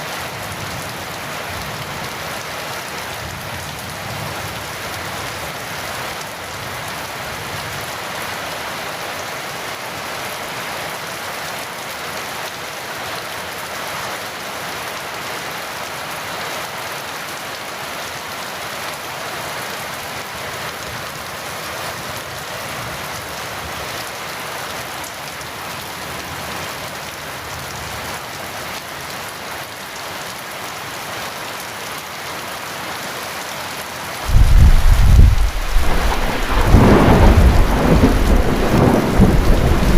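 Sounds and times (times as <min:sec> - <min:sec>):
heavy rain: 0:00.0 - 0:39.9
low thunder clap: 0:34.3 - 0:39.9.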